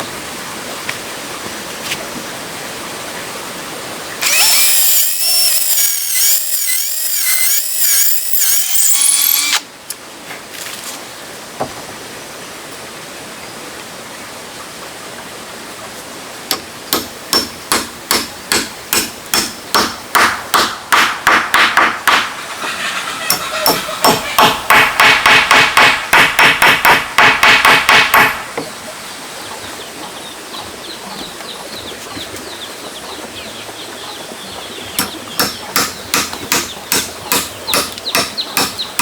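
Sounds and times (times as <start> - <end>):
power tool running: 4.2 - 9.6
hammer striking wood: 16.5 - 22.7, 23.3 - 28.7, 35.0 - 39.0.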